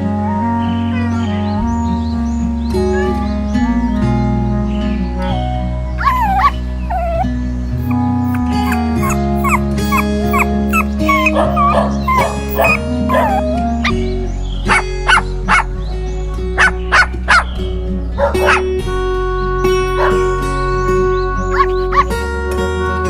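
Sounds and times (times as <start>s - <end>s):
background music with sustained chords: 0.0s - 23.0s
sharp yelps: 6.0s - 14.0s, 21.5s - 22.2s
young animal whimpering: 6.0s - 14.0s, 21.5s - 22.2s.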